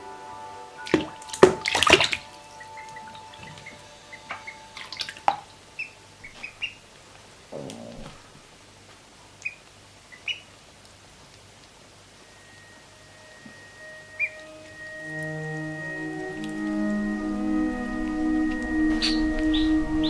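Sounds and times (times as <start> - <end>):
ducklings peeping: 1.3 - 8.2, 9.4 - 10.6, 12.5 - 17.2, 18.4 - 20.0.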